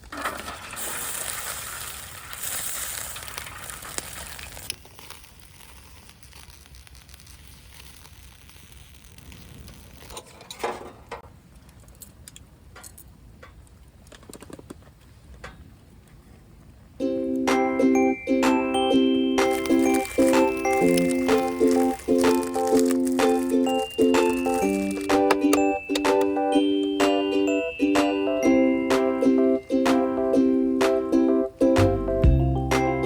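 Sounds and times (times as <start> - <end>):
fire crackling and popping: 0.0 - 16.1, 18.4 - 28.4
campfire hissing: 0.3 - 10.6, 18.8 - 27.0.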